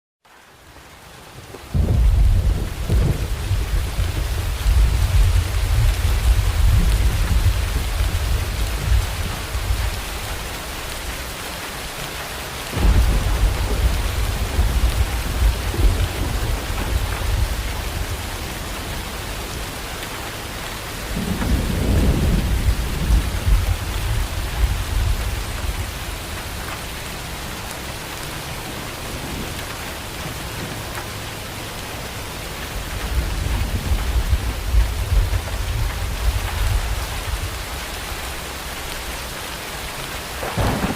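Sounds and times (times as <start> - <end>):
heavy rain: 0.3 - 40.9
thunder rumbling: 1.7 - 11.0, 12.7 - 19.9, 21.0 - 27.9, 32.9 - 39.1, 40.4 - 40.9
loud crack of thunder: 1.8 - 8.0, 12.7 - 18.2, 21.2 - 25.2, 40.4 - 40.9.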